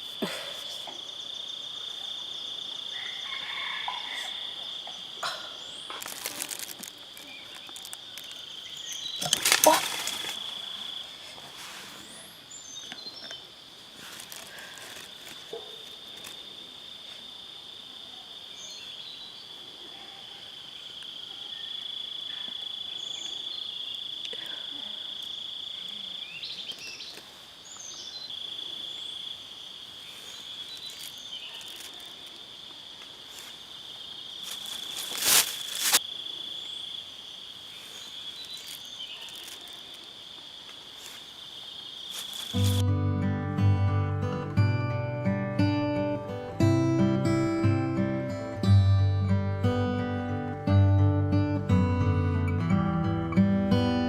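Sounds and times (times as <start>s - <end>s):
insects droning: 0.0s - 54.0s
loud rustle: 9.2s - 12.2s, 34.4s - 36.0s, 42.1s - 42.8s.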